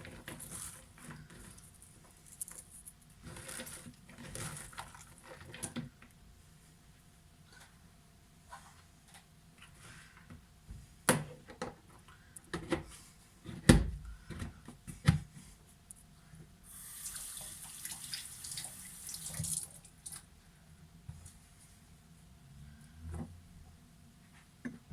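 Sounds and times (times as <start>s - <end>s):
water running: 16.7s - 20.2s.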